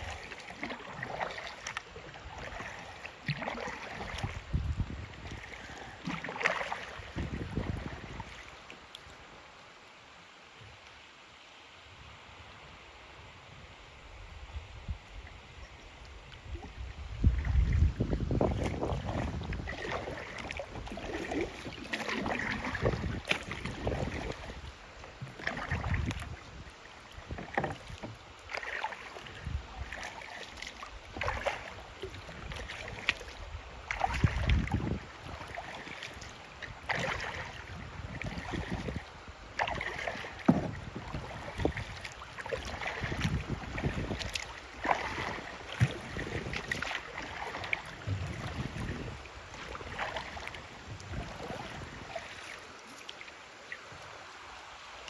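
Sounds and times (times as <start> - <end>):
water splashing against kayak hull: 0.0 - 9.4, 15.1 - 55.0
steady wash of water: 0.0 - 55.0
wind buffeting microphone: 4.0 - 5.9, 7.0 - 8.4, 14.2 - 28.2, 29.2 - 30.1, 31.0 - 36.0, 36.6 - 52.4.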